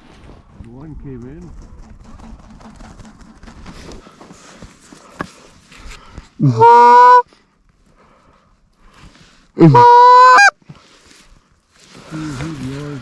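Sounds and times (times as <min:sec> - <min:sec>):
goose call honks: 0:06.4 - 0:07.2, 0:09.6 - 0:10.6.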